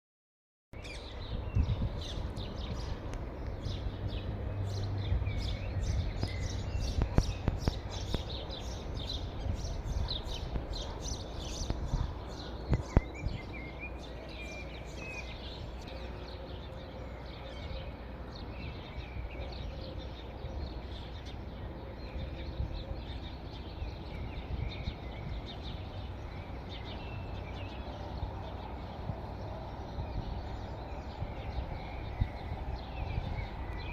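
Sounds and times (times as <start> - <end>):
birds chirping: 0.8 - 33.9.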